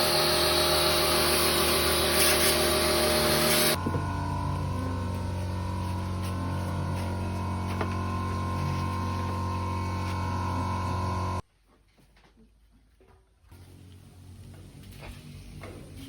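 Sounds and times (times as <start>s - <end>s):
motor humming with high whine: 0.0s - 11.4s.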